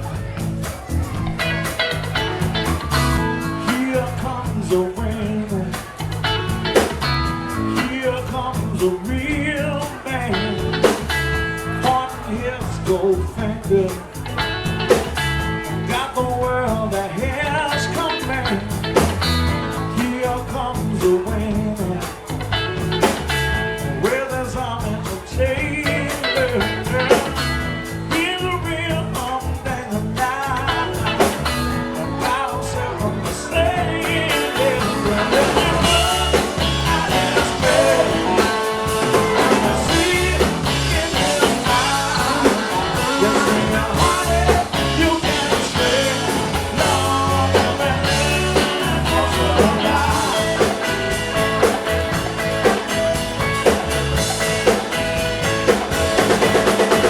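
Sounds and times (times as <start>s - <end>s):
live blues-rock band playing: 0.0s - 57.0s
wavering electric guitar lead: 0.0s - 57.0s.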